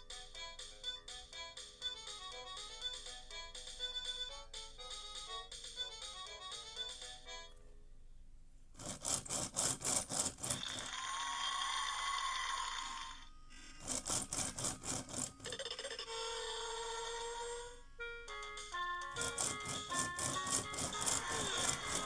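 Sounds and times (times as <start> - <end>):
toy rattling electronic pulses: 8.8 - 22.0.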